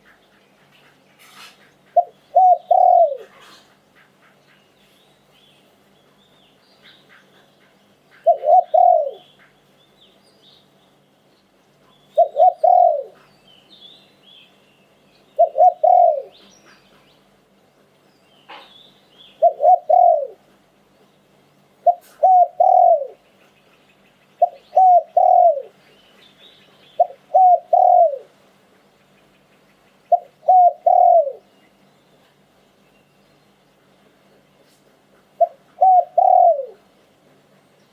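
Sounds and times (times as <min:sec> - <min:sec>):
dove cooing: 0:01.8 - 0:03.8, 0:08.1 - 0:09.3, 0:12.1 - 0:13.3, 0:15.4 - 0:16.4, 0:19.4 - 0:20.5, 0:21.8 - 0:23.2, 0:24.4 - 0:25.8, 0:27.0 - 0:28.4, 0:30.1 - 0:31.5, 0:35.3 - 0:36.9.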